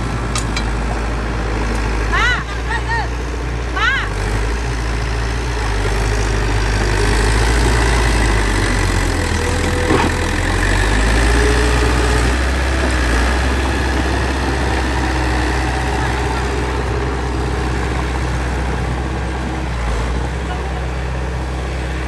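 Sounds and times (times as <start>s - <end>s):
bulldozer diesel engine: 0.0s - 22.0s.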